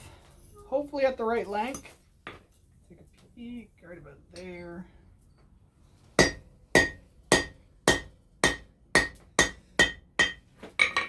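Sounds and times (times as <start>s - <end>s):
hammer striking steel on anvil: 6.2s - 11.0s.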